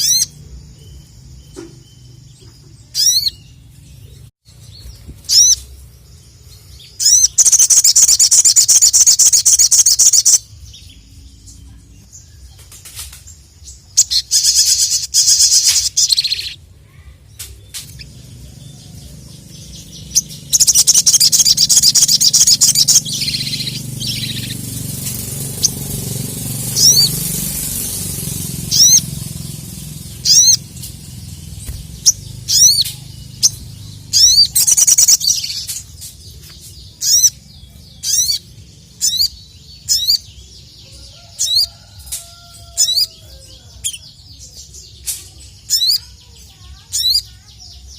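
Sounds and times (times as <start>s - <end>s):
songbird chattering trill: 0.0s - 12.8s, 13.5s - 47.9s
low rumble: 22.6s - 34.6s
bird whistled notes: 26.8s - 27.2s, 28.7s - 29.1s, 30.2s - 30.7s.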